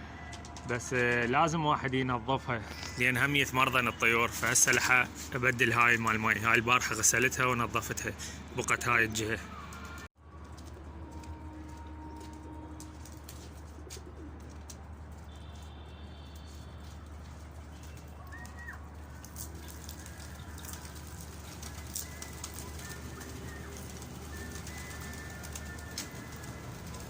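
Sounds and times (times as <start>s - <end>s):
pigeons cooing: 13.7s - 14.6s, 18.3s - 27.0s.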